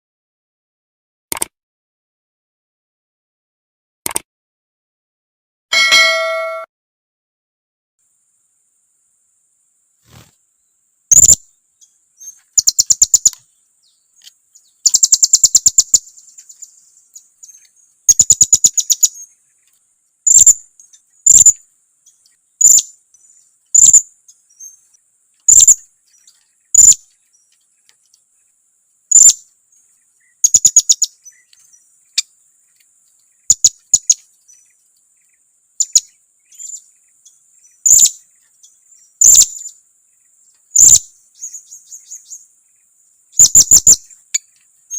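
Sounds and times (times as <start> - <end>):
parrot chirping: 11.1 - 11.4, 12.2 - 13.4, 14.8 - 16.6, 20.3 - 20.6, 21.3 - 21.6, 22.6 - 22.9, 23.8 - 24.8, 25.5 - 25.8, 26.8 - 27.0, 29.1 - 29.4, 30.4 - 31.4, 40.8 - 42.2, 43.4 - 44.5.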